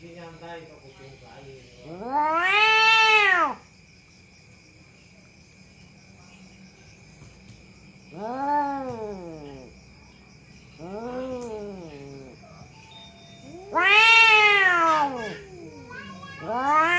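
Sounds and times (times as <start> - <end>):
cat yowling: 1.6 - 3.6, 8.1 - 9.7, 10.8 - 16.9
faint high whine: 12.5 - 13.7.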